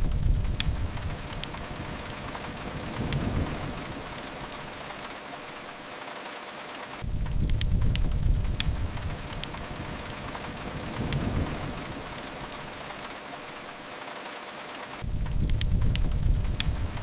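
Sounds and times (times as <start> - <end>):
deep rumbles: 0.0 - 5.1, 7.0 - 13.1, 15.0 - 17.0
crackling wood fire: 0.0 - 17.0
rain against a window: 0.0 - 17.0.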